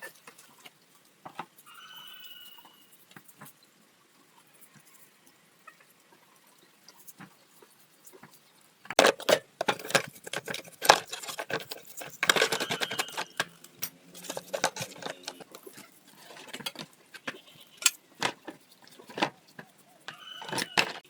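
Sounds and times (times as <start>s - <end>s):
metallic clinks and knocks: 9.0s - 21.0s.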